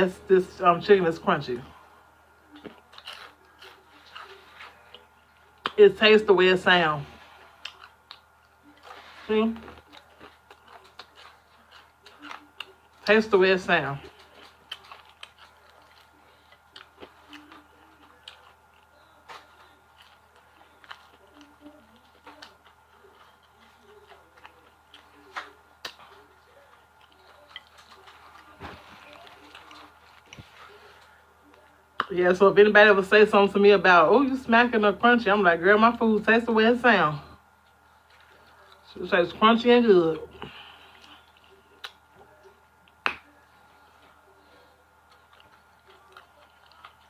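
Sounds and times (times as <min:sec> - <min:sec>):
crunchy chewing: 0:02.4 - 0:05.8, 0:07.0 - 0:13.1, 0:13.9 - 0:32.1, 0:37.6 - 0:39.0, 0:40.4 - 0:47.0.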